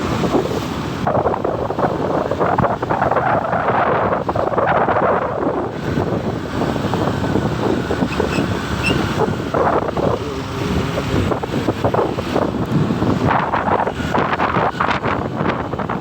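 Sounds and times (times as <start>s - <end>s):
wind rushing over microphone: 0.0s - 16.0s
motorcycle engine running: 5.8s - 16.0s.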